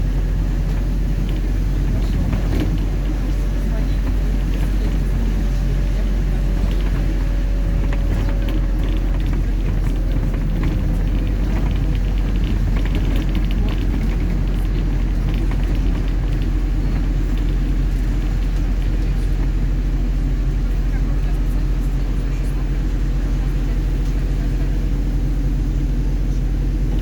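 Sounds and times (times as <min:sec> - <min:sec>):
bus engine and road rumble: 0:00.0 - 0:27.0
light clicks and rattles: 0:00.6 - 0:19.8.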